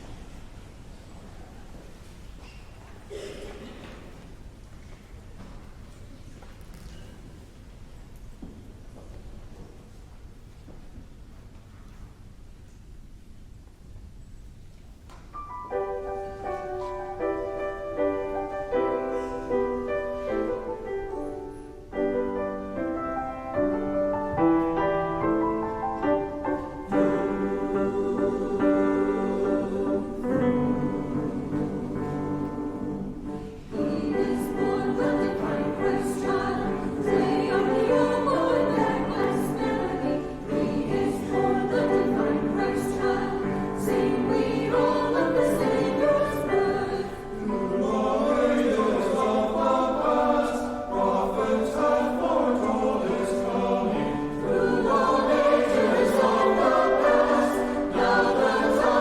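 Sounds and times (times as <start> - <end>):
church choir singing: 15.8 - 59.0.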